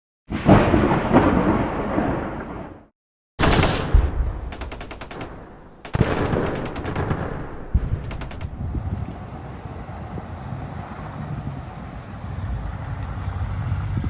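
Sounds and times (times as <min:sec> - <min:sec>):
gunshots: 0:03.4 - 0:08.8
quick rattling runs: 0:04.3 - 0:08.7.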